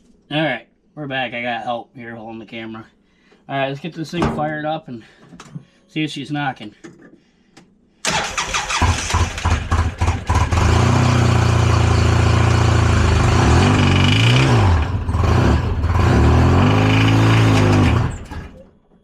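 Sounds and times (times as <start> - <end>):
engine cranking and running: 8.1 - 18.7.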